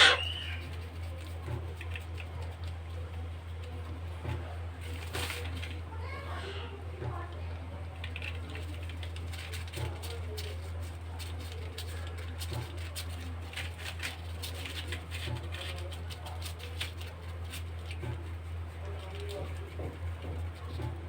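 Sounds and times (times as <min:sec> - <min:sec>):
baby parrots squeaking and clicking: 0:00.0 - 0:00.9
parrots scrabbling: 0:00.0 - 0:02.3.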